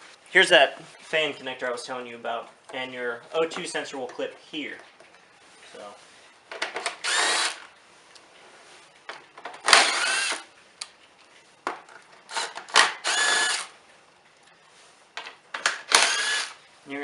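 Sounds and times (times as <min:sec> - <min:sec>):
cordless power tool whining: 0:07.0 - 0:07.6, 0:09.7 - 0:10.5, 0:12.3 - 0:13.7, 0:15.9 - 0:16.6.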